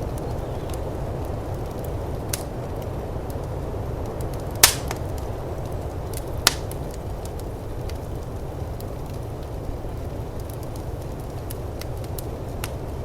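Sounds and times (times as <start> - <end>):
fire popping: 0.0 - 13.0
low rumble of storm wind: 0.0 - 13.0
wood fire crackling: 0.0 - 13.0.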